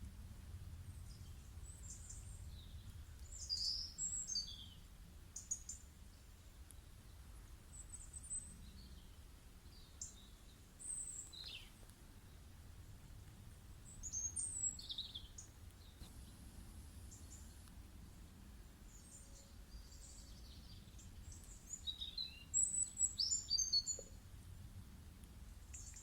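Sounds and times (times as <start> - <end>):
faint low hum: 0.0 - 26.0
birds chirping: 7.7 - 12.5.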